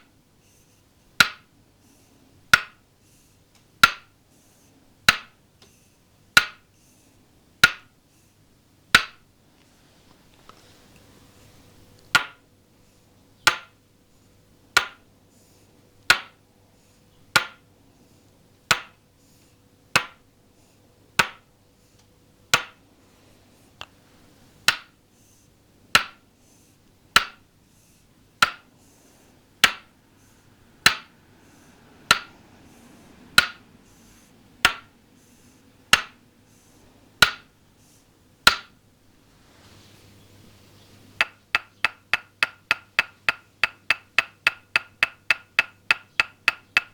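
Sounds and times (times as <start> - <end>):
wooden mallet tapping wooden peg: 1.1 - 1.5, 2.4 - 2.9, 3.6 - 4.2, 5.0 - 5.4, 6.3 - 6.7, 7.6 - 8.0, 8.9 - 9.3, 12.0 - 12.5, 13.4 - 13.8, 14.7 - 15.1, 16.0 - 16.4, 17.3 - 17.7, 18.6 - 19.0, 19.9 - 20.3, 21.2 - 21.5, 22.5 - 22.8, 24.6 - 25.0, 25.9 - 26.3, 27.0 - 27.5, 28.4 - 28.7, 29.6 - 30.0, 30.8 - 31.2, 32.0 - 32.4, 33.3 - 33.7, 34.6 - 35.0, 35.8 - 36.2, 37.2 - 37.6, 38.4 - 38.8, 41.2 - 46.9.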